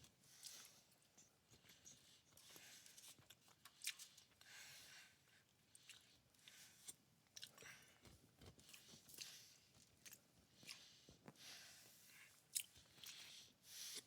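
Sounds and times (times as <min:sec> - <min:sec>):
chewing and biting food: 0:01.5 - 0:04.4, 0:05.7 - 0:11.4, 0:12.4 - 0:13.3.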